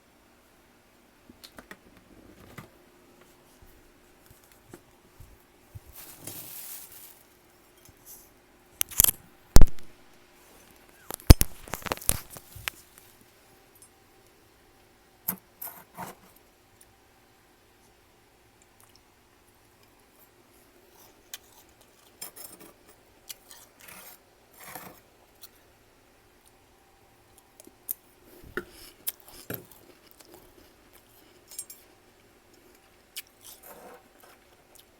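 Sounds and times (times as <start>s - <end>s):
freezer frost crunching: 5.8s - 7.5s, 8.8s - 9.9s, 10.9s - 13.2s.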